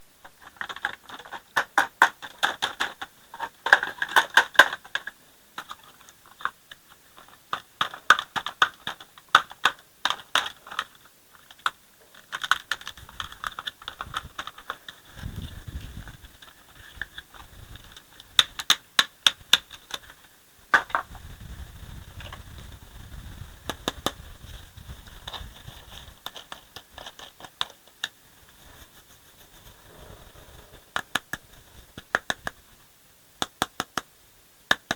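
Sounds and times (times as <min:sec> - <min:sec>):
plastic toy parts clicking and rattling: 0:00.2 - 0:21.1, 0:25.1 - 0:28.2.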